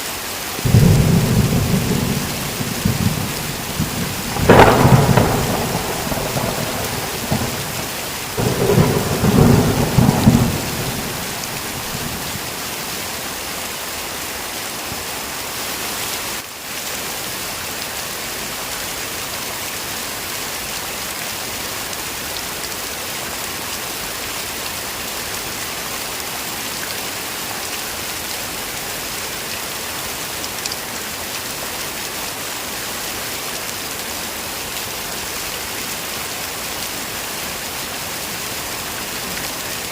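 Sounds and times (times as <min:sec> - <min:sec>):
heavy rain falling: 0:00.0 - 0:39.9
roll of thunder: 0:00.7 - 0:12.4.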